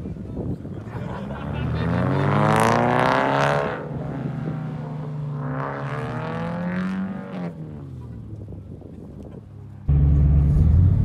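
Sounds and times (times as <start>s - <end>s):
car engine revving: 1.2s - 8.1s.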